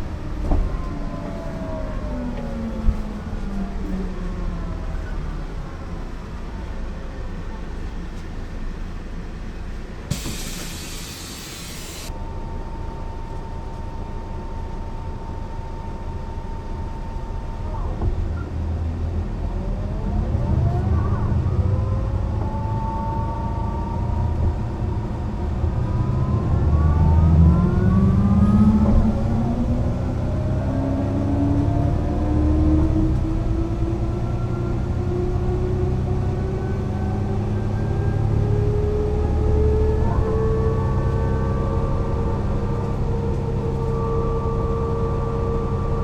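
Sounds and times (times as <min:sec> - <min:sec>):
bus engine whining: 0:00.0 - 0:46.0
compressed air hiss: 0:10.1 - 0:12.1.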